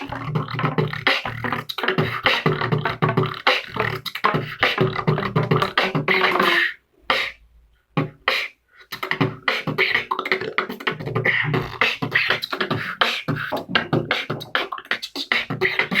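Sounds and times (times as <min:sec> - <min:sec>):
beatboxing: 0:00.0 - 0:16.0.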